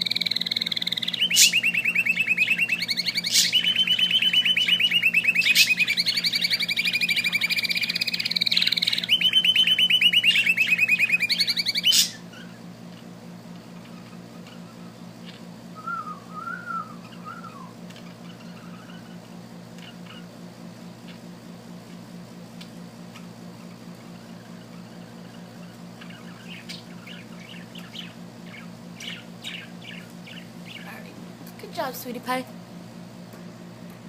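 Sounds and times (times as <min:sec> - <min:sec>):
small bird trilling song: 0:00.0 - 0:12.6, 0:24.1 - 0:31.0
low steady hum: 0:00.0 - 0:34.0
soft wavering whistle: 0:15.8 - 0:17.8.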